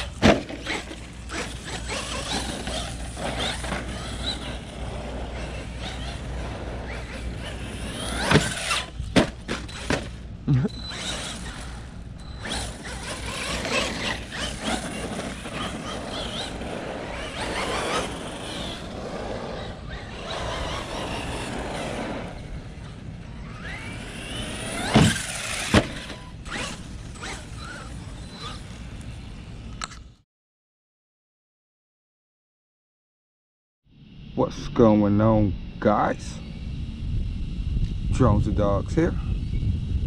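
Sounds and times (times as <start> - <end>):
electric motor whining: 0.0 - 29.6
drivetrain and tyre noise: 0.0 - 30.1.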